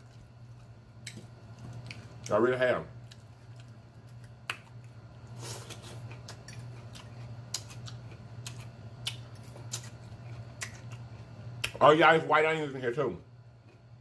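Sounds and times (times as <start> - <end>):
man chewing salad: 0.0 - 2.3, 3.0 - 11.8
low electrical hum: 0.0 - 14.0.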